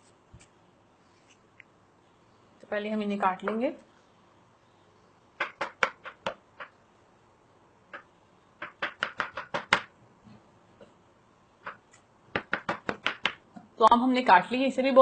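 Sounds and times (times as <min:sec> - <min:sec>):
knife chopping on board: 0:08.6 - 0:09.9, 0:11.6 - 0:13.4.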